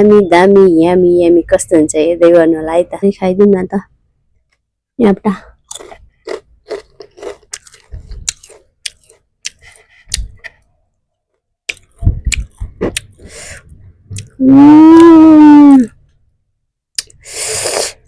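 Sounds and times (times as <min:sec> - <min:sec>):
person chewing crunchy food: 0:05.6 - 0:10.7, 0:11.7 - 0:14.4
person humming: 0:14.4 - 0:15.9.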